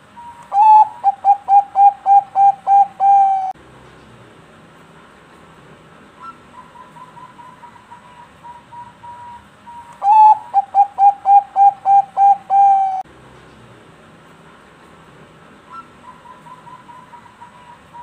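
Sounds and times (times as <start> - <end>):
dove cooing: 0.1 - 3.6, 10.0 - 13.0, 15.7 - 18.0.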